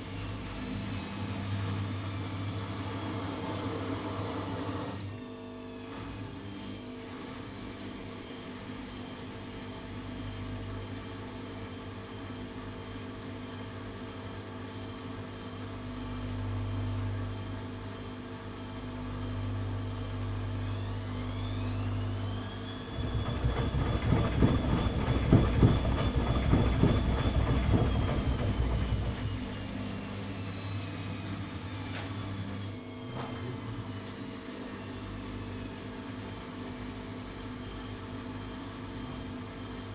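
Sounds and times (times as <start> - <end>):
washing machine motor hum: 0.0 - 5.0, 20.5 - 34.5
spinning drum whine and rumble: 21.0 - 30.6.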